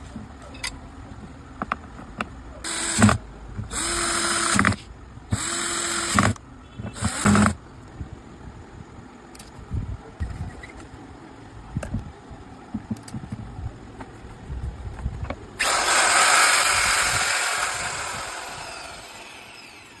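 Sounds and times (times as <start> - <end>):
power tool motor rushing: 15.6 - 20.0.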